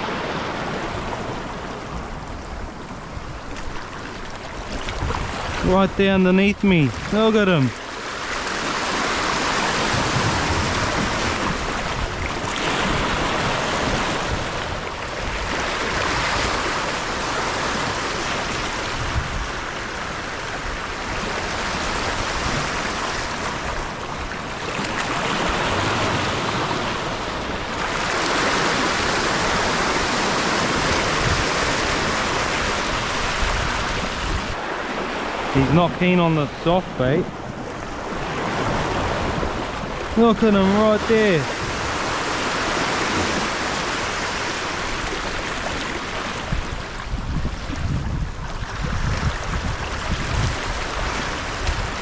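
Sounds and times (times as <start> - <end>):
sea washing against rocks: 0.0 - 52.0.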